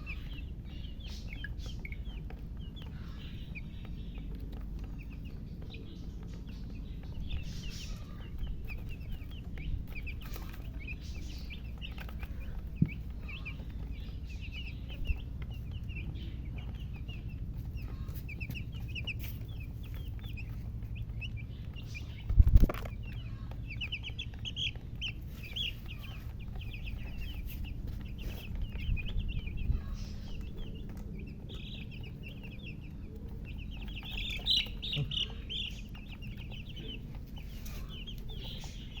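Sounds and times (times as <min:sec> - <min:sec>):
chicks peeping: 0:00.0 - 0:39.0
low steady hum: 0:00.0 - 0:39.0.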